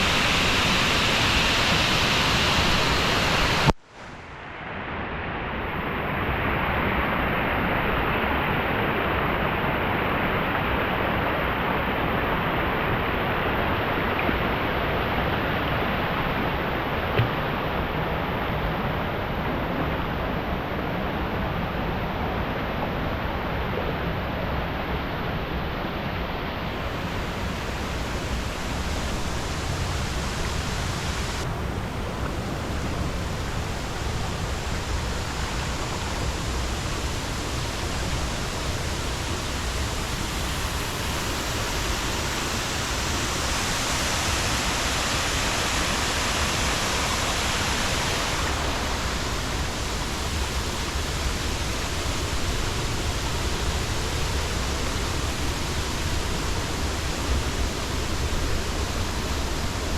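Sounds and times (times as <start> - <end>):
waterfall rushing: 0.0 - 3.7, 24.1 - 59.9.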